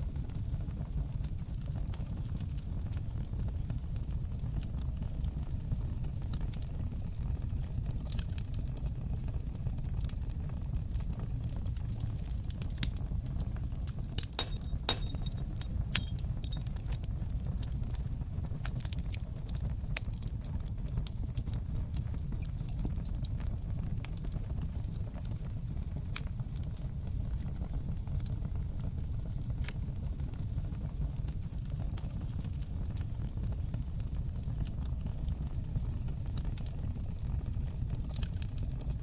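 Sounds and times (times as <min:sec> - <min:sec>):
fireplace fire crackling: 0:00.0 - 0:39.0
low rumble of flames: 0:00.0 - 0:39.0
sharp pops of fire: 0:11.7 - 0:23.4.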